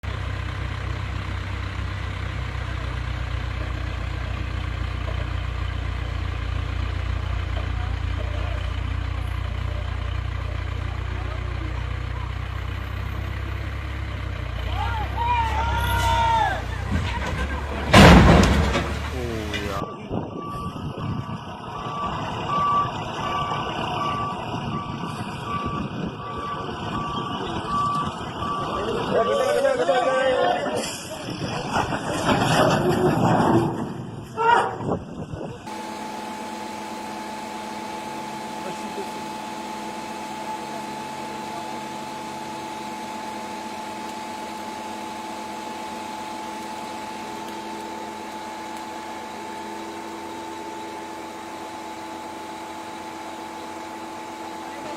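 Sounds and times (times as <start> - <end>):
heavy engine idling: 0.0 - 54.9
reversing alarm beeping: 19.7 - 30.5, 35.7 - 54.8.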